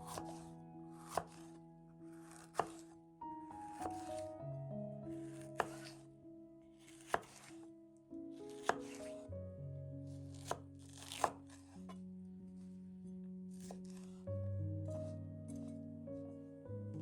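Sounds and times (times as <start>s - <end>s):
knife chopping on cutting board: 0.0s - 0.4s, 1.0s - 1.5s, 2.2s - 2.9s, 5.3s - 6.0s, 6.8s - 7.5s, 8.5s - 9.2s, 10.3s - 11.7s
background music sustained notes: 0.0s - 17.0s.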